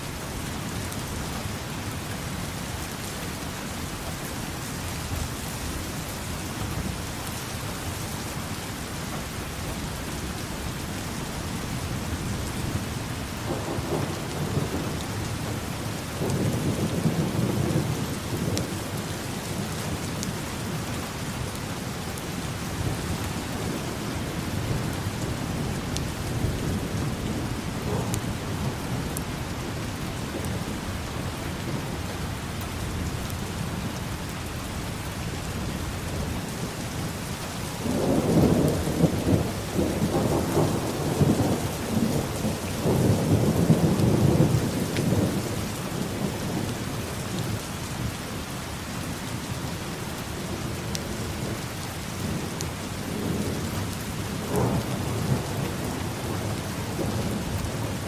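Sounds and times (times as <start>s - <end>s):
steady rain: 0.0s - 58.0s
thunder rumbling: 22.6s - 34.0s, 34.7s - 46.7s, 52.2s - 58.0s.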